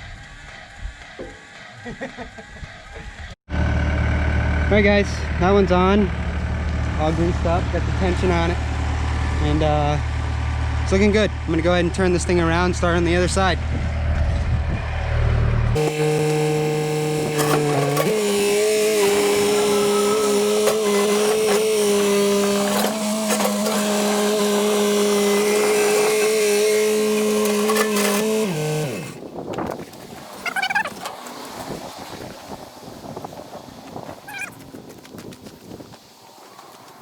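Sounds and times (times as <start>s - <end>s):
tracks clanking: 4.4s - 32.0s
excavator hydraulics whining: 15.8s - 29.2s.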